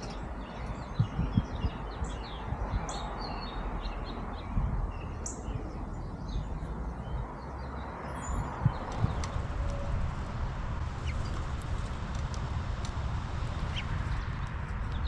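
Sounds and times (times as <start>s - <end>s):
songbirds chirping: 0.0s - 15.0s
low steady rumble: 8.4s - 15.0s.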